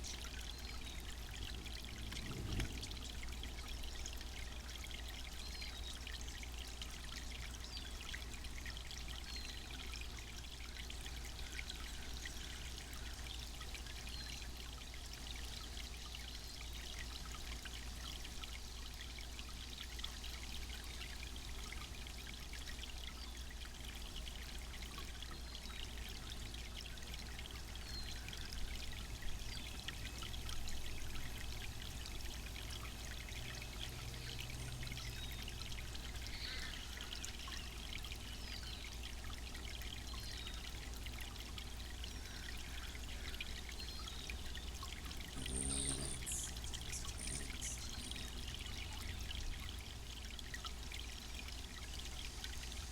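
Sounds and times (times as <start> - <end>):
fountain water trickling: 0.0 - 52.9
water splashes: 1.1 - 4.4.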